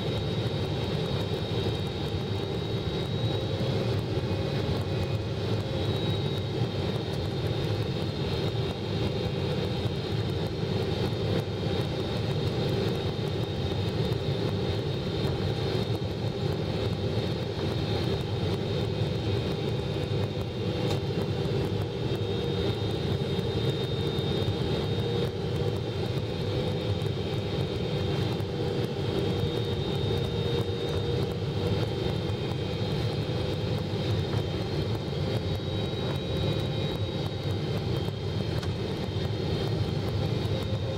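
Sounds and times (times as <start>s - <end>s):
jet engine cabin drone: 0.0s - 40.9s
steady high whine: 0.0s - 40.9s.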